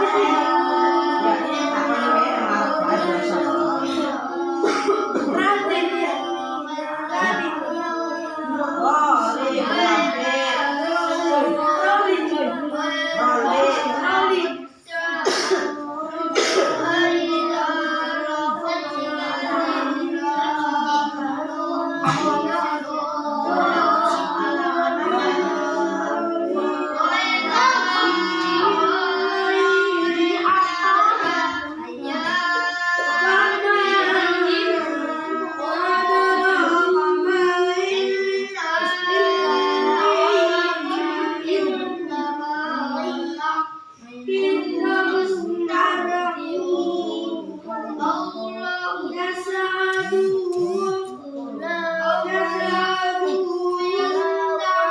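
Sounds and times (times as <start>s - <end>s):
children chanting in sung style: 0.0s - 54.9s.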